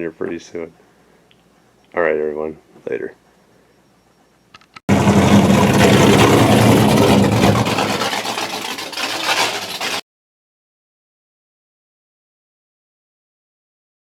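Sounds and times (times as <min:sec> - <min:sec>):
air compressor running: 0:04.9 - 0:08.5.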